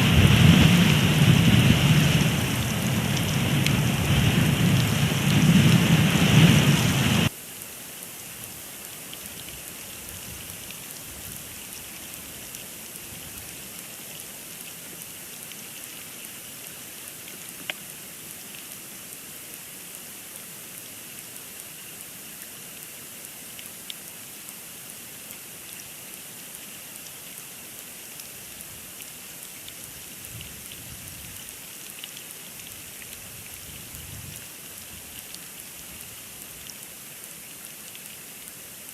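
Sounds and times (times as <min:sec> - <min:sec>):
hiss of snow and wind: 0:00.0 - 0:38.9
faint ticks: 0:07.6 - 0:20.1, 0:20.8 - 0:38.9.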